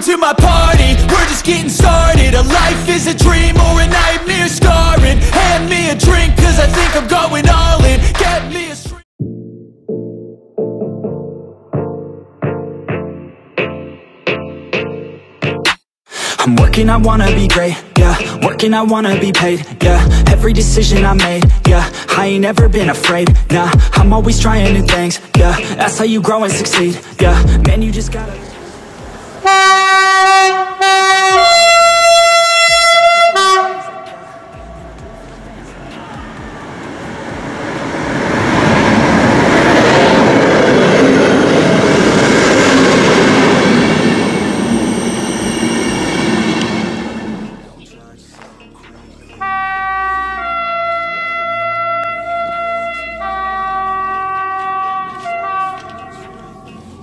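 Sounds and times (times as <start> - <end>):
two-tone railway horn: 29.4 - 35.0, 49.4 - 57.0.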